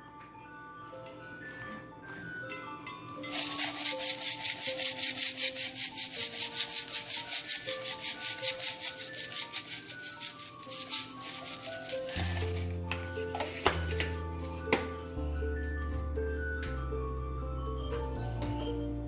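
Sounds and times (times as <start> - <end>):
background music: 0.0 - 19.0
hands rubbing vegetables with salt: 3.3 - 12.8.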